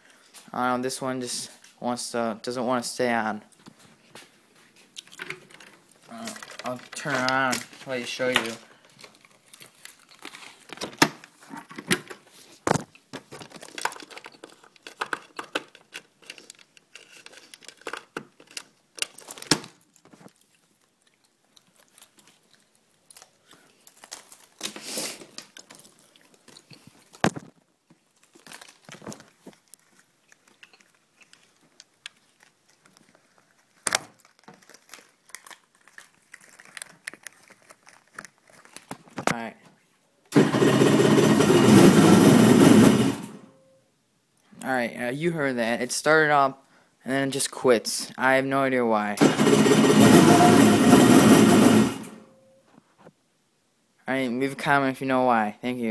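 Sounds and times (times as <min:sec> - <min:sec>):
rustling and crinkling: 0:03.5 - 0:40.1.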